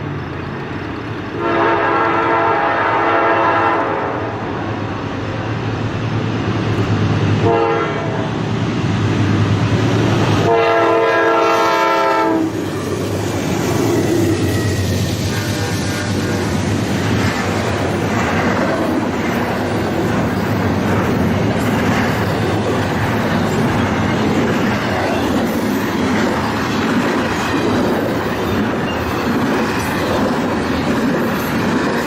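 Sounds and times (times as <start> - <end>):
freight train rumbling past: 0.0 - 32.0
locomotive horn blasts: 1.4 - 4.4, 7.4 - 8.3, 10.4 - 12.6, 15.2 - 16.6.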